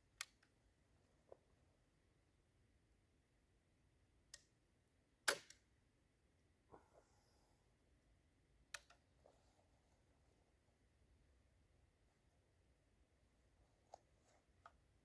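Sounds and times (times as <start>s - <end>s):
flintlock mechanism clicks: 5.2s - 5.6s.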